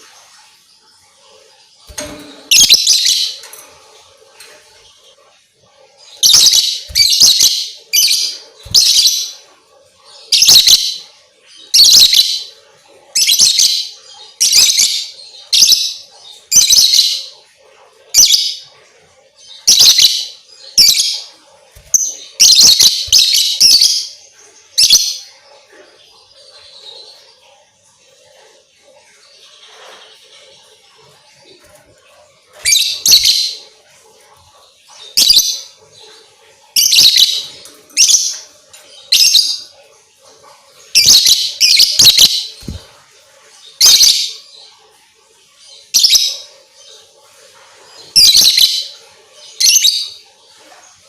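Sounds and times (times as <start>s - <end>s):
lovebird chirping bursts: 1.9s - 3.4s, 6.2s - 9.3s, 21.8s - 24.1s.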